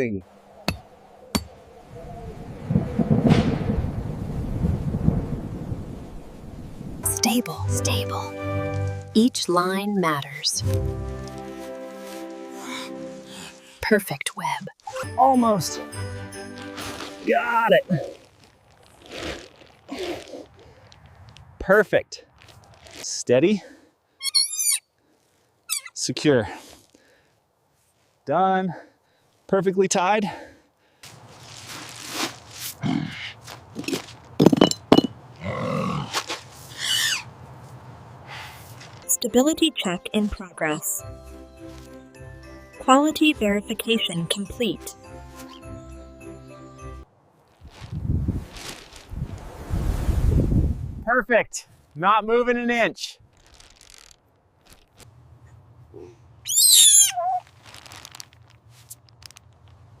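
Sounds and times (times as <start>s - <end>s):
high-pitched animal call: 24.2s - 24.8s, 56.5s - 57.5s
grunting squeaky animal calls: 24.2s - 24.9s, 25.6s - 26.0s, 35.4s - 36.1s, 36.8s - 37.3s, 56.5s - 57.4s
soft rustles and clicks: 47.4s - 49.5s, 53.3s - 55.1s, 57.4s - 60.0s.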